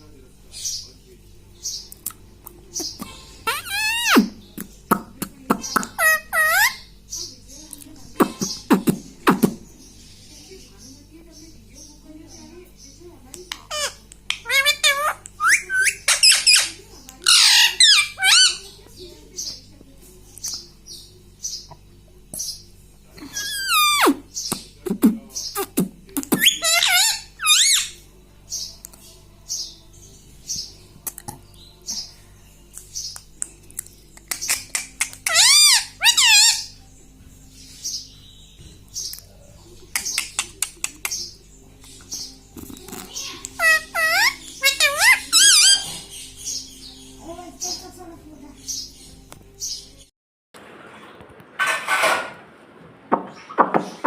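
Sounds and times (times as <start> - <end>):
parakeet chirping: 2.6 - 7.6, 8.2 - 18.8, 23.3 - 24.6, 25.4 - 28.7, 34.2 - 36.8, 39.9 - 49.8
parakeet squawking: 2.7 - 4.5, 5.5 - 7.3, 13.5 - 18.8, 23.3 - 24.7, 25.4 - 28.0, 34.3 - 36.8, 42.2 - 47.8
parakeet chirping and clicking: 13.3 - 18.6, 32.7 - 36.7, 39.0 - 46.6.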